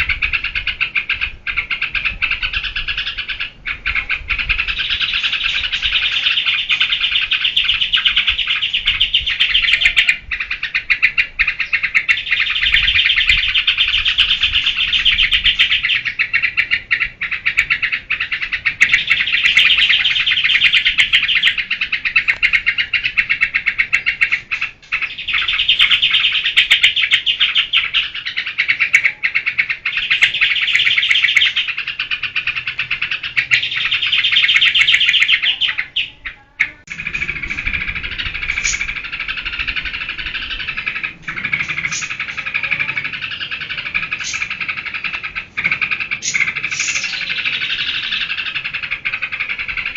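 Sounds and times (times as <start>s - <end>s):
bird chattering song: 0.0s - 49.9s.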